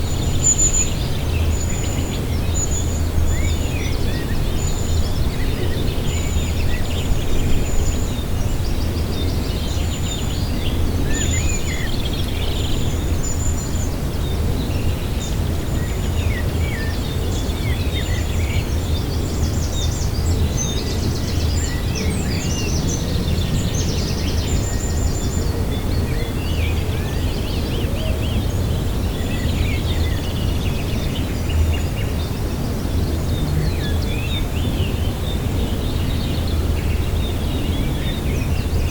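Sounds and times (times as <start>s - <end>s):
birds chirping and trilling: 17.0s - 38.9s
steady low rumble: 28.4s - 38.9s.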